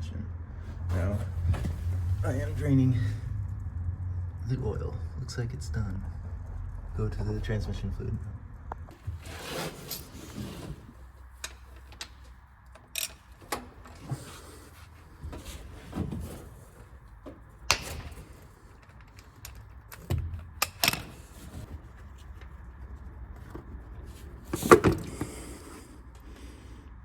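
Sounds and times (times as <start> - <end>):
low steady hum: 0.0 - 26.9
hand tools clicking and knocking: 8.9 - 22.5.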